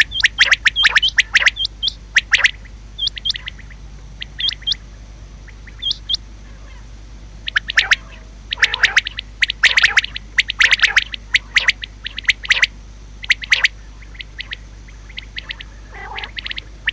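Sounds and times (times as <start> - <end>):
quail calling: 0.0 - 16.9.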